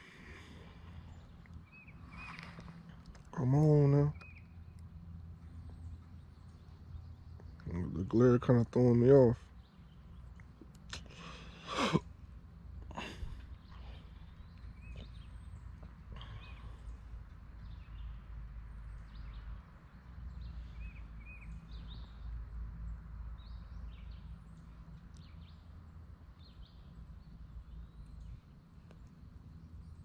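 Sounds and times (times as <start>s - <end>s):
steady low rumble: 0.0s - 19.5s
small birds chirping: 0.0s - 30.0s.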